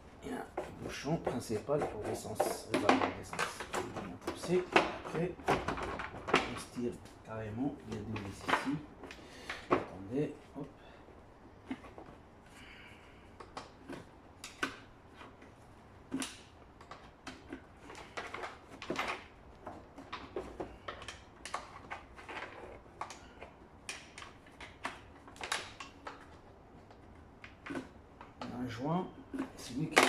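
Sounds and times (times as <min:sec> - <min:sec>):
plastic panels knocking: 0:00.5 - 0:06.8
hand tools clicking and tapping: 0:00.5 - 0:06.9.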